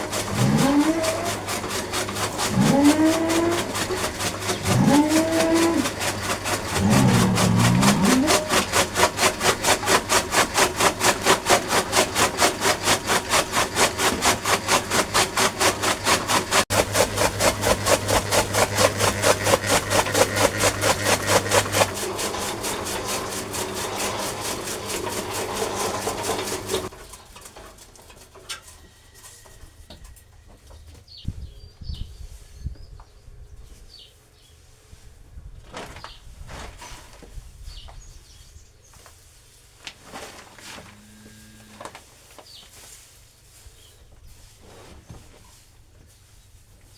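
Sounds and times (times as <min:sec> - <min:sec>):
machine motor chopping: 0:00.0 - 0:26.9.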